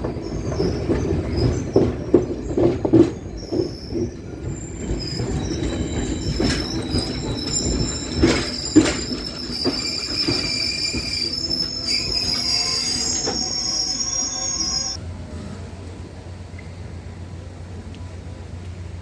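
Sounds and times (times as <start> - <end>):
train wheels clacking: 0.0 - 15.0
train wheels squealing: 0.0 - 15.0.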